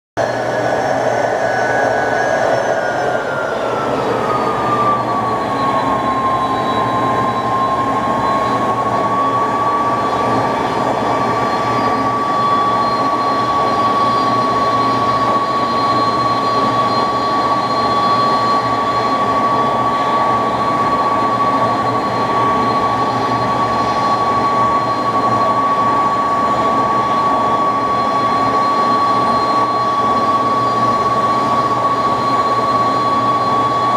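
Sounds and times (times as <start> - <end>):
jet engines roaring with whine: 0.2 - 33.9.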